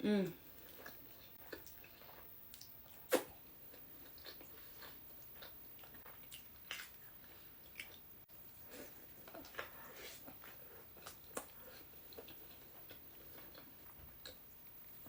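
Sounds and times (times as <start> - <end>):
wet mouth noises: 3.0 - 3.4
sharp bite: 3.1 - 3.4.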